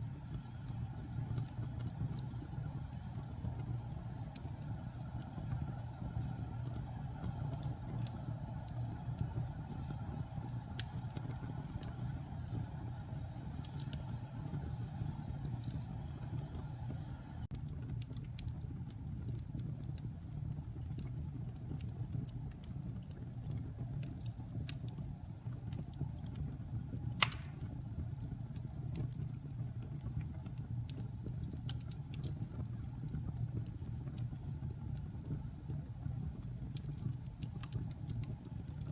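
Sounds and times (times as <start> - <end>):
wood fire crackling: 0.0 - 38.9
sharp loud pop: 27.2 - 27.6.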